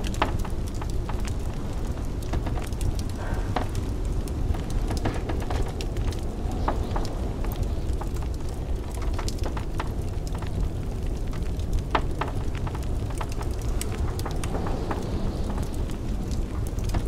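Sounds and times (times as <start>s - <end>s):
blizzard wind rumble: 0.0s - 17.0s
wood fire crackling and popping: 0.0s - 17.0s.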